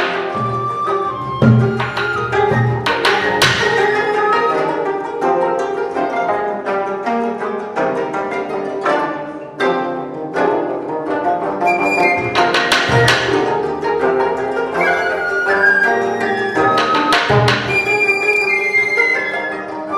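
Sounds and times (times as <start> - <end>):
plucked zithers playing: 0.0 - 19.9
sharp strikes: 1.5 - 4.2, 12.0 - 13.9.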